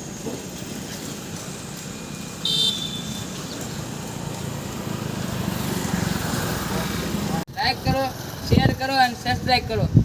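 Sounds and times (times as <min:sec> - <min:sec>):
short high horn beep: 0:02.4 - 0:03.4.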